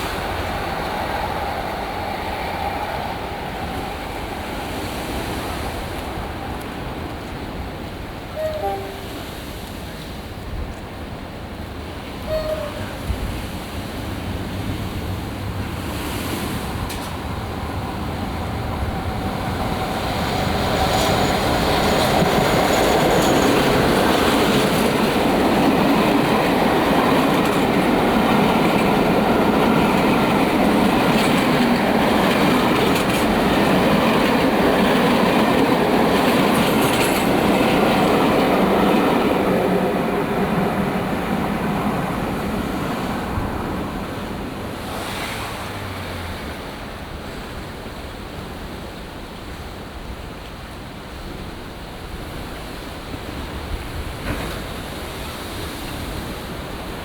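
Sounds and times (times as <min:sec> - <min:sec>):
passenger train passing: 0:00.0 - 0:57.0.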